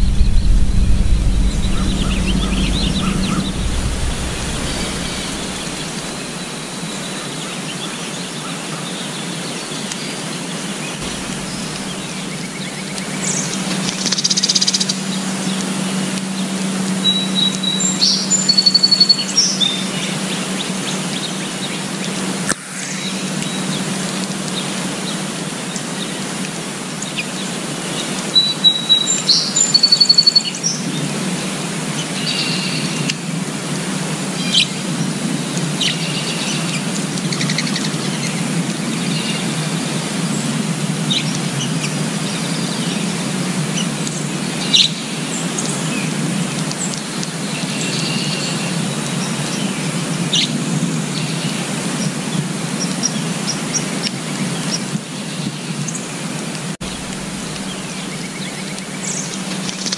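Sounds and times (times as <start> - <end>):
background hiss: 11.0 - 14.1, 56.8 - 59.9
songbirds chirping: 56.8 - 59.9.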